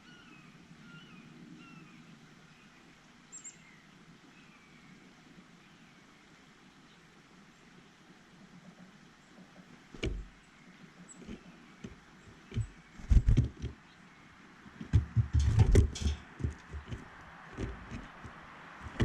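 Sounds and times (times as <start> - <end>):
birds pecking at a feeder: 10.0 - 10.4, 11.1 - 13.9, 14.6 - 19.0
heavy thuds: 10.0 - 10.4, 11.3 - 13.7, 14.7 - 19.0.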